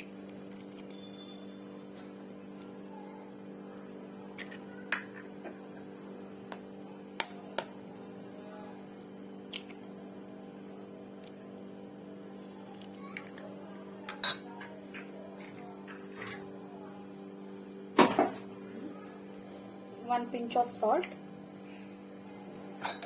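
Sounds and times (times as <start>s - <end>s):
steady electrical hum: 0.0s - 23.0s
dishes and utensils clinking: 14.1s - 16.5s, 22.8s - 23.0s.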